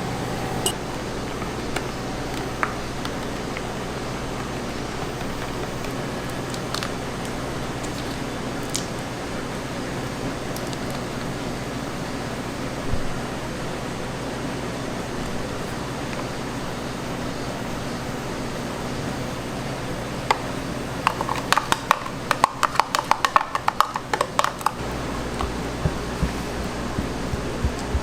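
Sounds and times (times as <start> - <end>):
kitchen hum: 0.0 - 0.9, 24.7 - 28.0.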